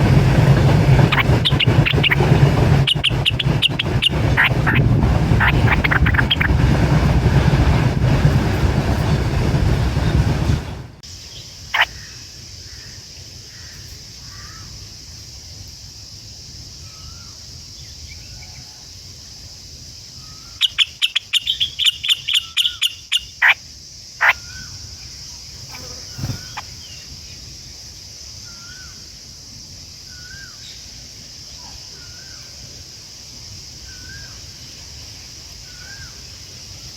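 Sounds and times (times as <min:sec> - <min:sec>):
steady high-pitched hiss: 0:00.0 - 0:36.9
sharp bird calls: 0:01.0 - 0:06.6, 0:11.2 - 0:14.8, 0:20.2 - 0:23.6, 0:24.2 - 0:25.1, 0:25.7 - 0:27.2.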